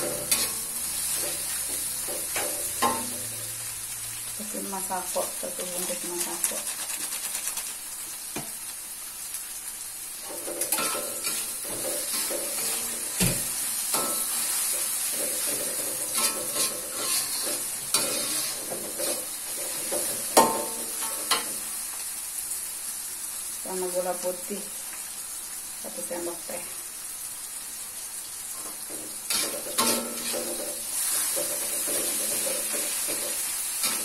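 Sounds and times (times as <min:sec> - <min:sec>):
metal spatula scraping wok: 0:00.0 - 0:03.6, 0:10.2 - 0:21.5, 0:28.9 - 0:34.0
paste sizzling in a wok: 0:00.0 - 0:34.0.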